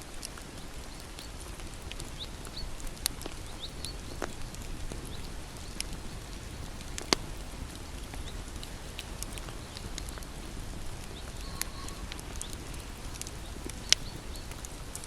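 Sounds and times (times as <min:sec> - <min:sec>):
fire rumbling: 0:00.0 - 0:15.0
wood crackling and popping: 0:00.0 - 0:15.0.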